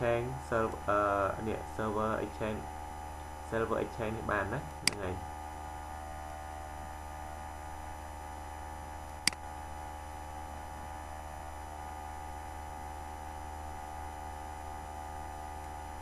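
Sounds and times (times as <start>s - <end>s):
electrical mains hum and hiss: 0.0s - 16.0s
sharp click: 4.7s - 5.1s, 9.2s - 9.4s.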